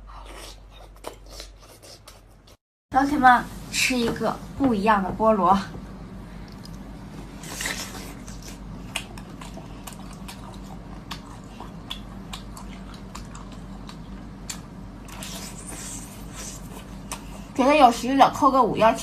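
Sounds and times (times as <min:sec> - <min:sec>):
chewing clicks and smacks: 0:06.5 - 0:06.9, 0:07.6 - 0:15.4
person biting food: 0:07.4 - 0:11.3.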